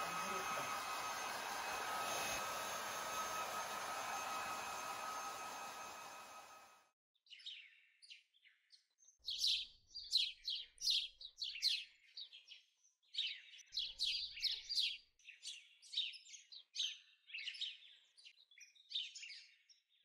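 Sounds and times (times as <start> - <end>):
small birds chirping: 7.3 - 20.0.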